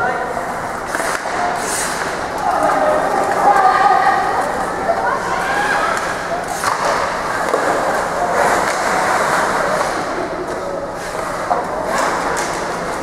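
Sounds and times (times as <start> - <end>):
skates scraping on ice: 6.6 - 13.0.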